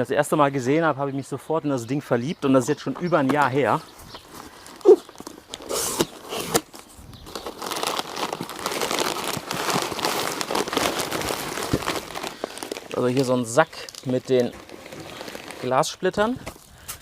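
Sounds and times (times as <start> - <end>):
plastic packaging crinkling: 4.0 - 16.7.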